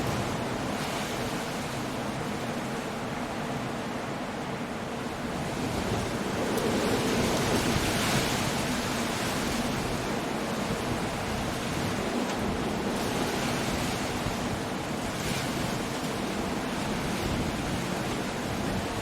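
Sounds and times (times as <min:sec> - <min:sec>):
wind: 0:00.0 - 0:19.0
waves breaking on rocks: 0:05.1 - 0:19.0.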